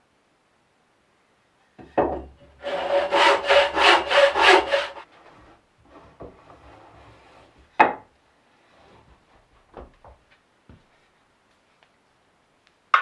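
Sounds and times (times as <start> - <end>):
hand saw cutting wood: 2.5 - 5.1.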